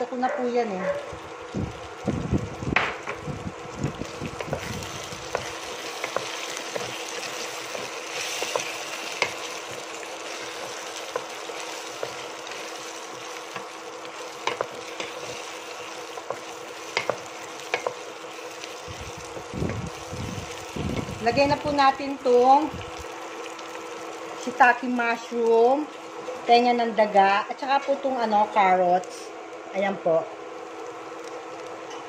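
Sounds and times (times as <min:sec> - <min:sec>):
steady hum: 0:00.0 - 0:32.0
food sizzling in a pot: 0:01.0 - 0:32.0
spatula scraping and tapping pot: 0:16.2 - 0:18.0.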